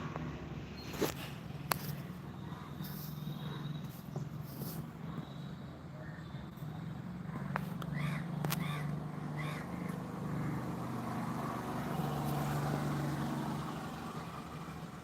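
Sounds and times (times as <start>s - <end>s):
crow cawing: 7.4s - 10.6s.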